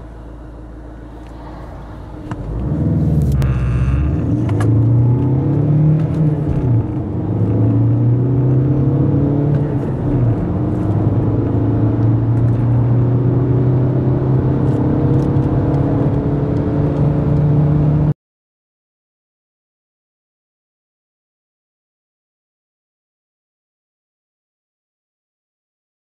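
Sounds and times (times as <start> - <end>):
road noise: 0.0 - 18.1
car engine accelerating: 0.4 - 18.1.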